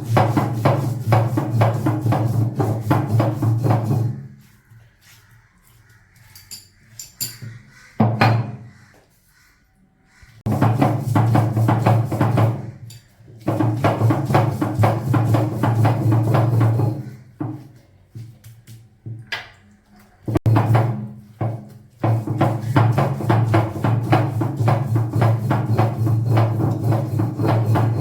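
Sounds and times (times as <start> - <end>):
music with quick percussion beat: 0.0 - 4.4, 7.2 - 8.6, 10.5 - 17.7, 20.3 - 28.0
coconut rubbed on grinding stone: 0.0 - 5.8, 22.0 - 28.0.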